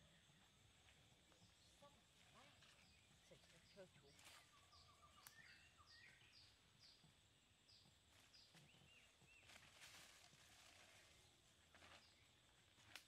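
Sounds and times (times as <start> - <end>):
rustling of leaves and branches: 0.0 - 13.0
faint bird calls: 1.4 - 7.0.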